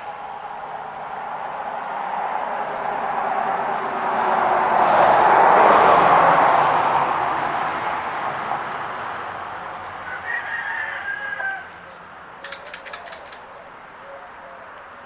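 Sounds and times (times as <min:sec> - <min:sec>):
passing traffic: 0:00.0 - 0:15.0
birds calling: 0:11.5 - 0:15.0
rattling run of clicks: 0:12.4 - 0:13.5.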